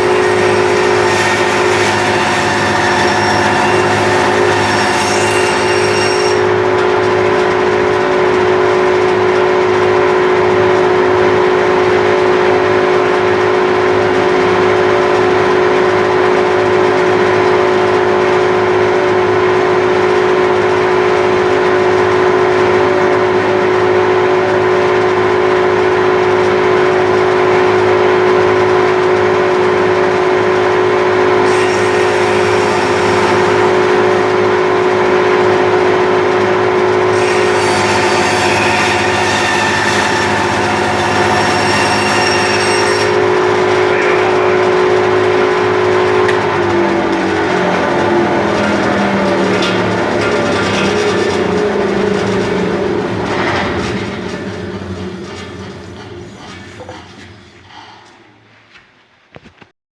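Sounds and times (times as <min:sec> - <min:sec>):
bandsaw running: 0:00.0 - 0:58.2.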